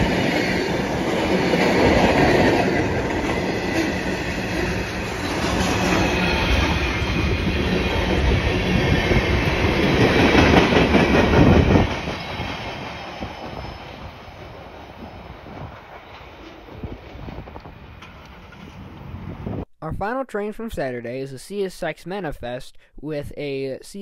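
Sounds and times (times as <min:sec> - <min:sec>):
freight train wheels rumbling and clattering: 0:00.0 - 0:19.4.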